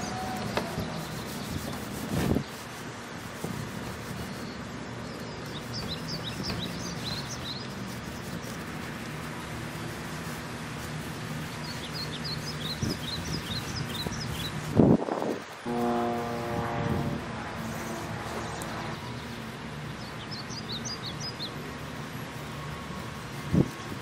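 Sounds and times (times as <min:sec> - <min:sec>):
outdoor background hiss: 0:00.0 - 0:24.0
small bird chirping: 0:04.3 - 0:08.4.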